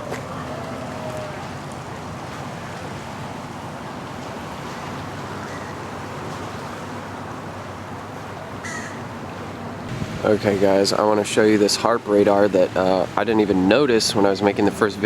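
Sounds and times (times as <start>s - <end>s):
distant traffic noise: 0.0s - 15.0s
wind on microphone: 9.9s - 10.8s.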